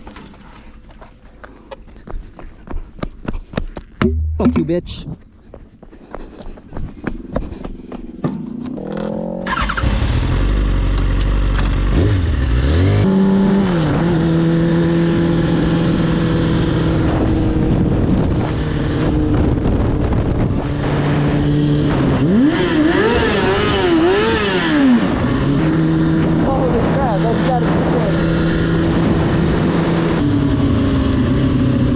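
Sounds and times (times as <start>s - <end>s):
motorcycle engine revving: 8.1s - 31.9s.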